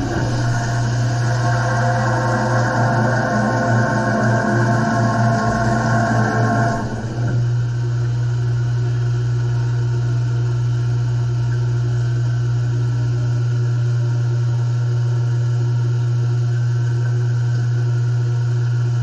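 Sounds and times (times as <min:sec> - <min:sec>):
grinding machine motor hum: 0:00.0 - 0:11.4.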